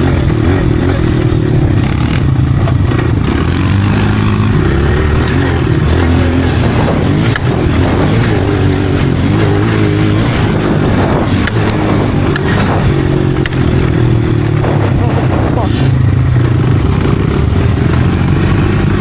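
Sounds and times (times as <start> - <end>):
sharp ticks: 0.0 - 14.9
dirt bike engine revving: 0.0 - 19.0.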